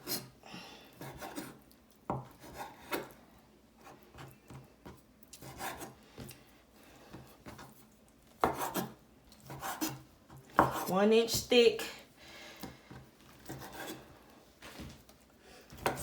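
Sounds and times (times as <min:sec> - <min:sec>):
knife slicing raw chicken: 0:00.0 - 0:00.3, 0:00.9 - 0:03.2, 0:03.8 - 0:06.4, 0:08.4 - 0:10.9.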